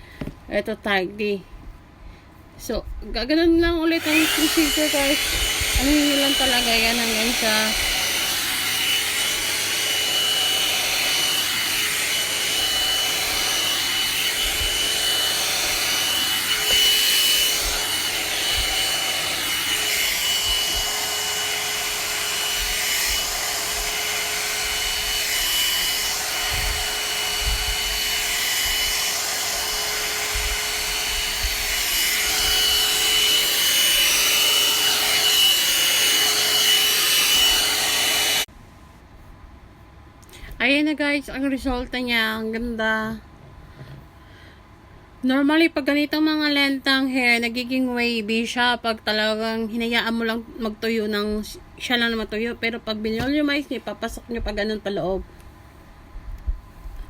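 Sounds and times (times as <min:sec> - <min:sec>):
hair dryer brush whining: 0:03.6 - 0:38.5, 0:51.2 - 0:55.2.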